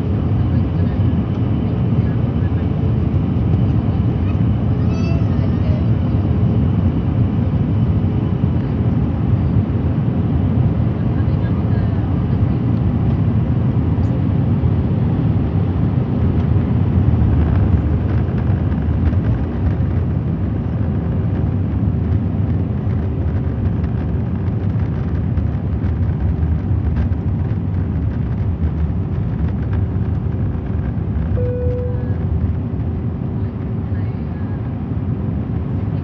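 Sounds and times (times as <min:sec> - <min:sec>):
airliner engines roaring in cabin: 0:00.0 - 0:36.0
brief higher tone: 0:31.4 - 0:32.2.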